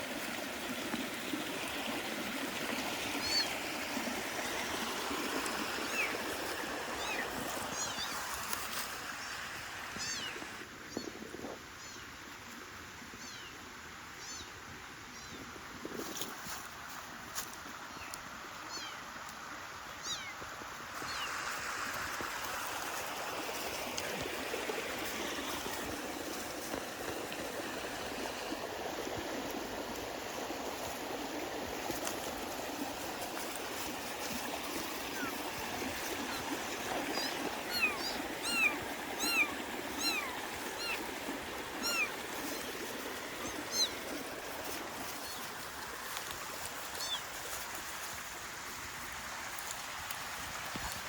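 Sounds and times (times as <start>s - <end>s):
stream water flowing: 0.0s - 51.0s
short high squeaky calls: 10.0s - 10.4s, 20.0s - 20.4s, 37.1s - 41.1s, 41.8s - 42.7s, 43.4s - 44.0s, 47.0s - 47.2s.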